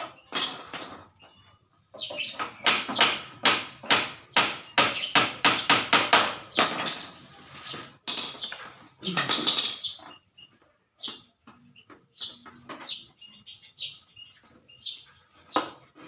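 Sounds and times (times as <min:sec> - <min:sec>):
rapid sharp knocks with ringing: 0:02.4 - 0:07.0.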